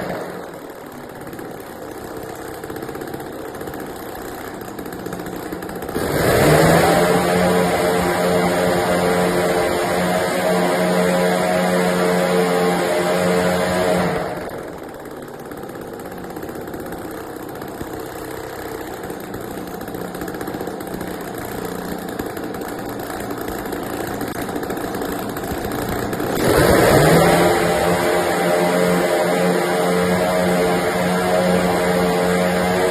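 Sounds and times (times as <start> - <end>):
engine turning a propeller: 0.0 - 32.9.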